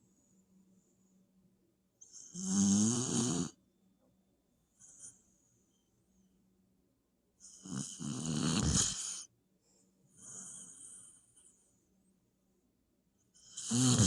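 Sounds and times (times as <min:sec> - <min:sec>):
puppy snoring: 0:02.0 - 0:03.6, 0:07.4 - 0:09.3, 0:10.1 - 0:11.6, 0:13.3 - 0:14.0.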